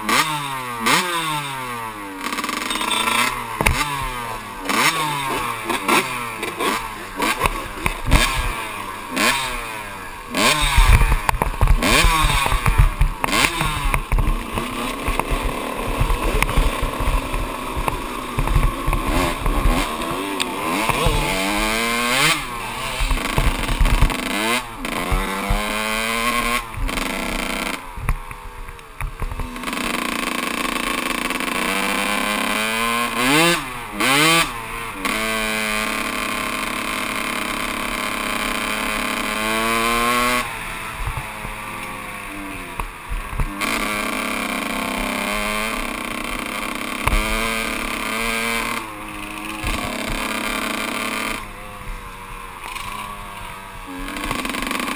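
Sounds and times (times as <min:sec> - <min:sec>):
dirt bike engine revving: 0:00.0 - 0:54.9
bike knocks and clatter: 0:03.6 - 0:04.9, 0:10.4 - 0:22.4.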